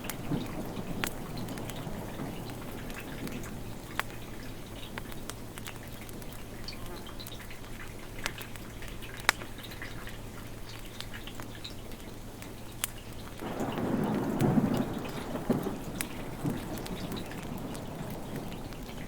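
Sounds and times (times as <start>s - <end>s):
thunder rumbling: 0.0s - 4.1s, 13.4s - 19.0s
steady rain: 0.0s - 19.0s.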